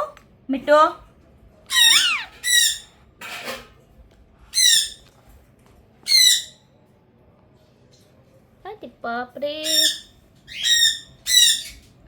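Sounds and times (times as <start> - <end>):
parakeet squawking: 1.7 - 2.9, 4.5 - 5.0, 6.1 - 6.6, 9.6 - 11.9.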